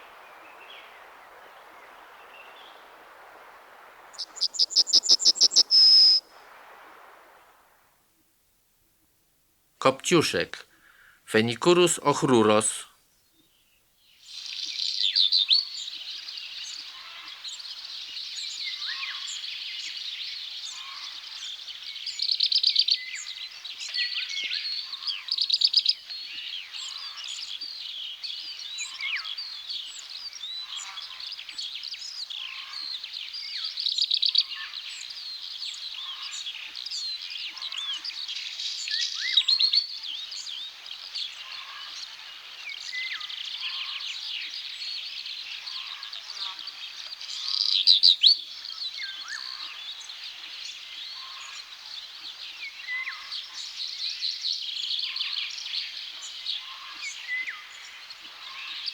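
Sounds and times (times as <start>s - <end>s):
small birds chirping: 0.0s - 6.4s, 13.2s - 58.9s
bird singing short song phrase: 4.2s - 6.3s.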